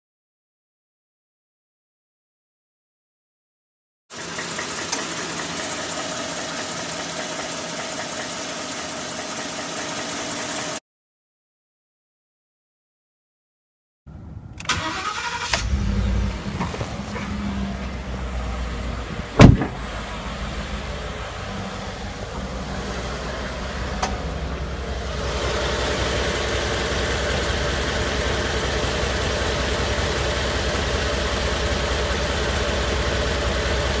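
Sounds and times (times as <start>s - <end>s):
car engine starting and idling: 4.1s - 10.8s, 14.1s - 34.0s
loud sharp thump: 19.3s - 20.0s.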